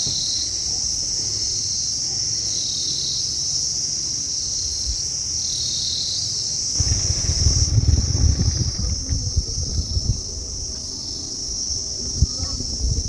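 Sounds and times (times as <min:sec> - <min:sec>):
insects chorus: 0:06.8 - 0:13.0.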